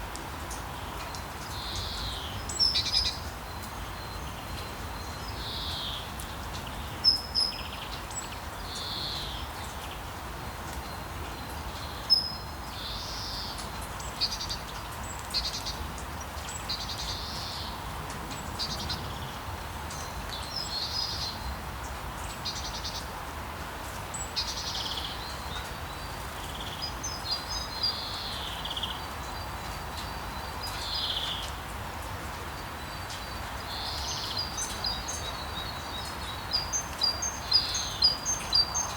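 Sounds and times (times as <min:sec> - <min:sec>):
steady rain hiss: 0:00.0 - 0:38.9
birds chirping: 0:32.8 - 0:38.9.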